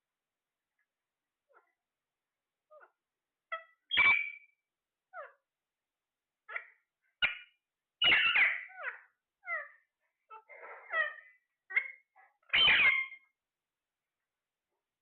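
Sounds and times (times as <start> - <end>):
parrot squawking: 2.7 - 5.4, 6.5 - 13.3.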